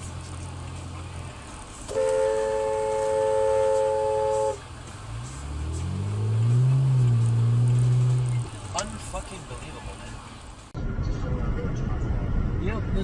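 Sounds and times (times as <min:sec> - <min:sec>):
vehicle engine revving: 0:00.0 - 0:09.3
car horn two-note chord: 0:01.9 - 0:04.6.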